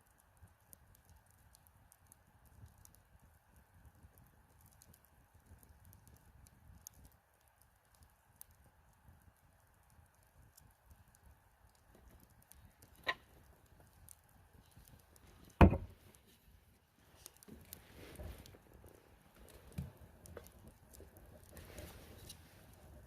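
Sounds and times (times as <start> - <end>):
campfire crackling: 0.0 - 23.0
loud short thud: 15.6 - 15.9
sharp pop: 15.6 - 15.9.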